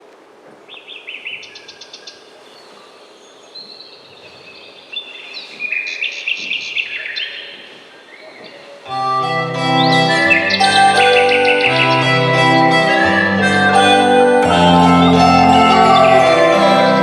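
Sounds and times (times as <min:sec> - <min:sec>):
songbirds chirping and trilling: 0:00.6 - 0:13.4.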